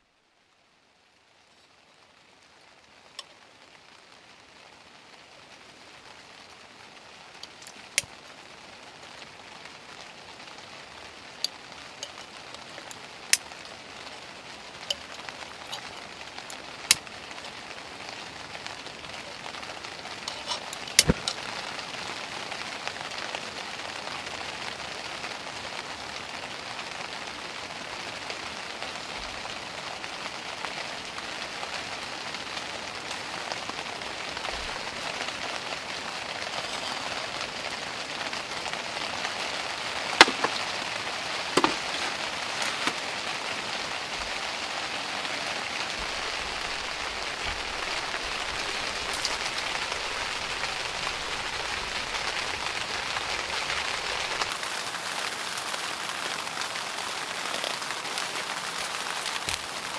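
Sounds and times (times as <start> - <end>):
rain pattering on tent fabric: 0.0 - 59.9.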